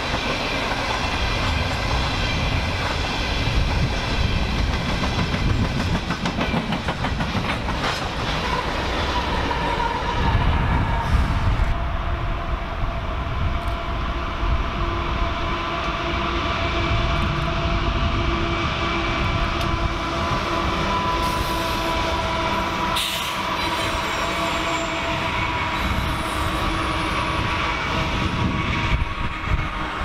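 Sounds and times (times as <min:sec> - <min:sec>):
train clank: 0:00.0 - 0:10.0
train wheels rumbling on rail: 0:00.0 - 0:30.0.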